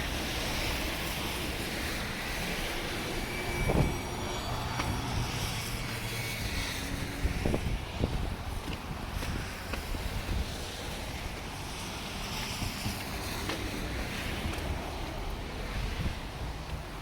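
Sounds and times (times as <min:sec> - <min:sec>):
road traffic rumble: 0:00.0 - 0:17.0
wind on microphone: 0:00.0 - 0:17.0.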